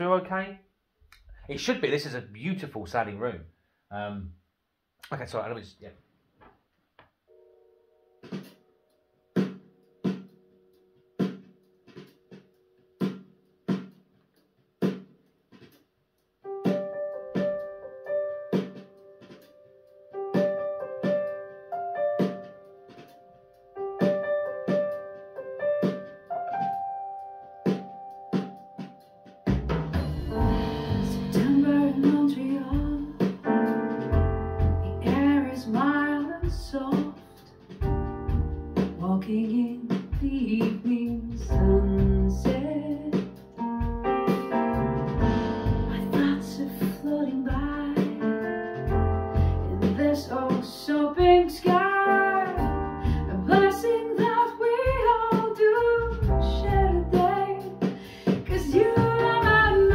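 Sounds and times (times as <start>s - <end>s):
deep bass line: 29.5s - 35.8s, 37.8s - 39.1s, 40.3s - 48.0s, 48.7s - 50.2s, 52.6s - 53.7s, 56.0s - 57.5s, 58.5s - 59.9s
song with singer: 30.3s - 33.5s, 49.8s - 59.9s.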